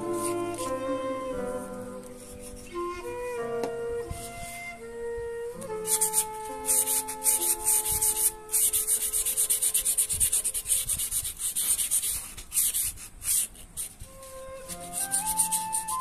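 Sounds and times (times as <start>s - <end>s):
plane iron scraping on abrasive paper: 5.8s - 16.0s.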